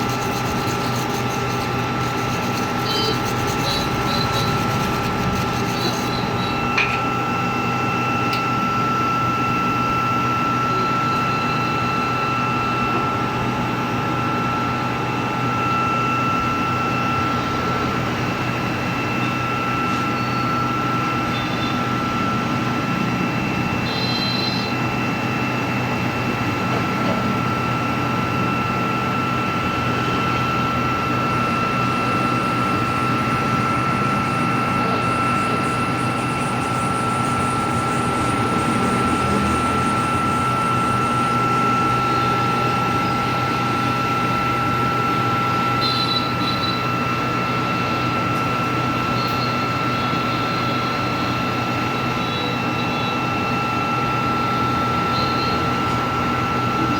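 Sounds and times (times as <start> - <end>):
welding arc hissing: 0.0 - 6.8
welding machine whine and hum: 0.0 - 56.9.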